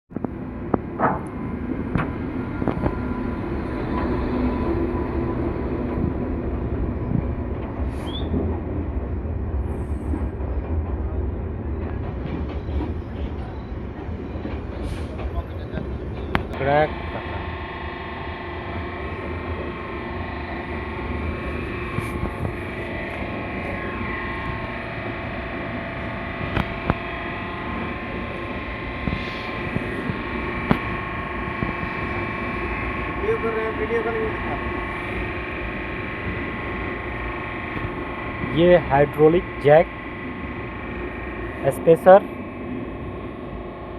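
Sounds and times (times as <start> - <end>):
train rumbling over rails: 0.1 - 43.9
hydraulic machine humming: 0.2 - 43.9
rail clicks: 6.8 - 16.6.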